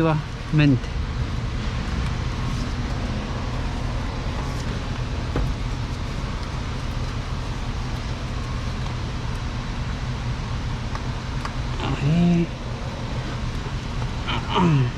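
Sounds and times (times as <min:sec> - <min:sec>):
engine running: 0:00.0 - 0:14.9.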